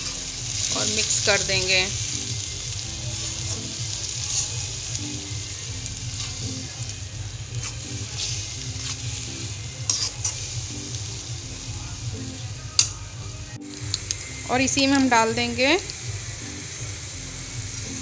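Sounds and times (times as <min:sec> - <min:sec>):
faint background music: 0:00.0 - 0:18.0
food sizzling in oil: 0:00.0 - 0:18.0
spatula scraping pan: 0:07.5 - 0:10.6.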